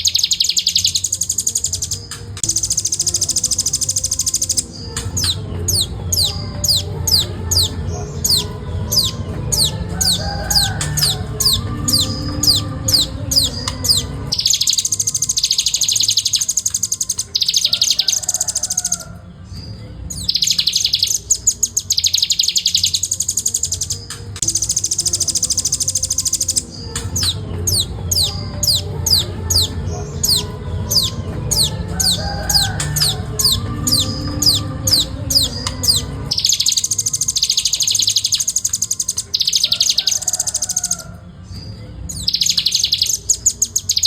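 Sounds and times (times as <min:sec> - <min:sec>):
nuthatch song trills: 0:00.0 - 0:44.0
low hum: 0:02.4 - 0:16.9.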